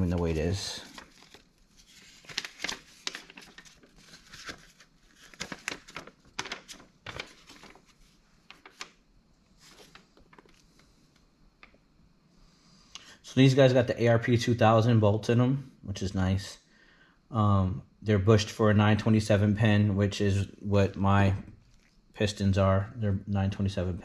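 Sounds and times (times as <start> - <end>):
packaging crinkling and rustling: 0.0 - 9.0, 9.6 - 10.9.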